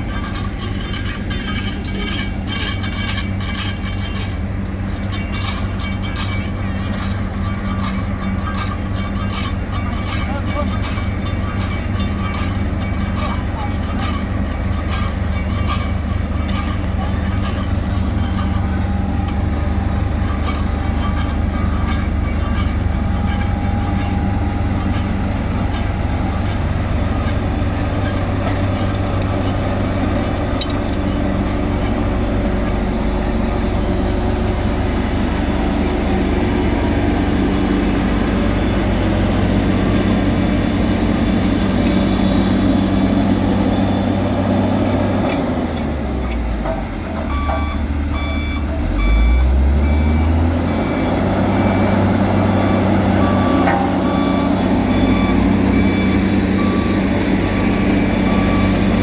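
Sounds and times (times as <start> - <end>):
diesel machinery engines droning: 0.0 - 59.0
second engine tone: 47.3 - 59.0.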